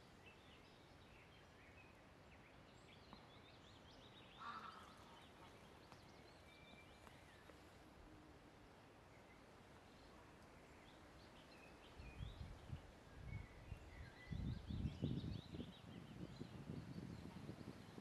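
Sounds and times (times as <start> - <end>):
soft steady hiss: 0.0 - 14.4
bird calls: 4.0 - 7.5.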